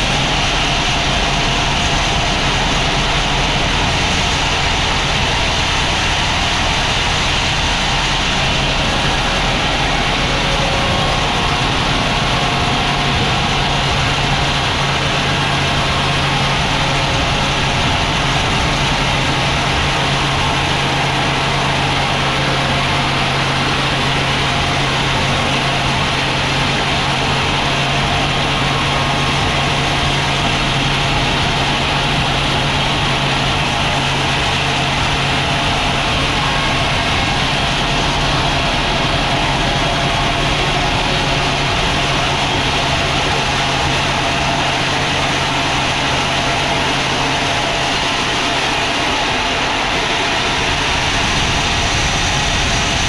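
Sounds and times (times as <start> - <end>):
sawmill machinery drone: 0.0 - 53.0.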